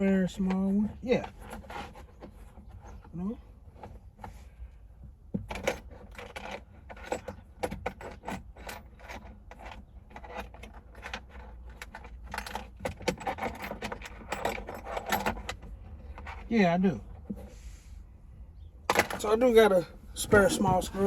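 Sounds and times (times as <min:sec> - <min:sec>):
metal screws clinking and rattling: 0:05.5 - 0:16.5.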